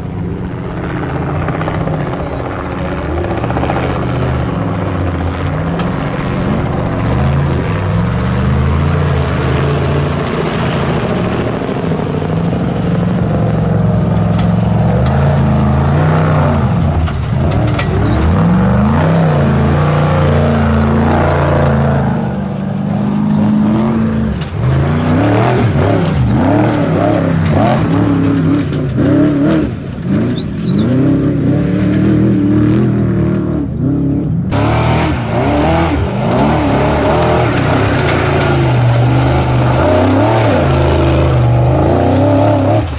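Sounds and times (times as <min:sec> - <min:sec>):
steady droning: 0:00.0 - 0:42.9
truck engines revving: 0:00.0 - 0:42.9.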